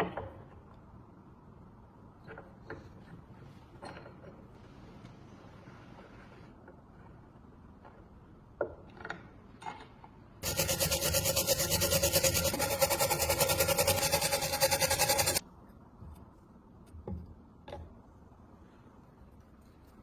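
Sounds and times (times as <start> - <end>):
tool scraping rusty metal: 10.4 - 15.4.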